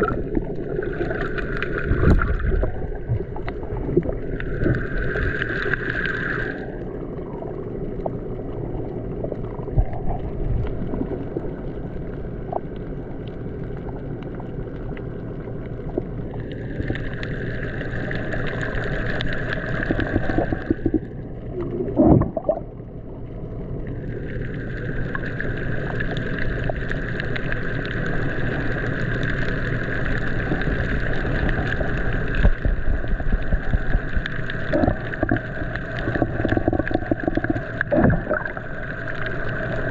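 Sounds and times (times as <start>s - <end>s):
water rushing along boat hull: 23.8s - 39.9s.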